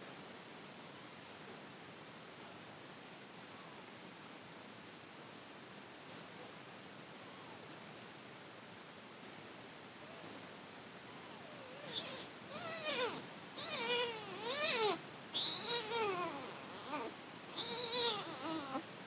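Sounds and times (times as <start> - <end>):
kitten meowing: 11.8 - 18.8.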